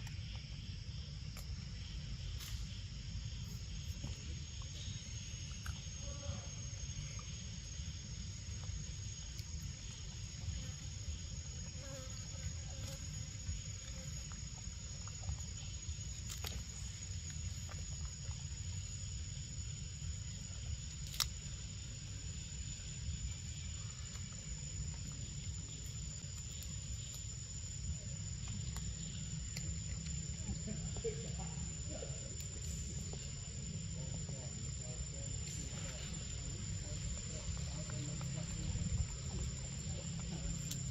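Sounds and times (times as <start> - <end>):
insects droning: 0.0 - 40.9
low rumble: 21.7 - 40.9.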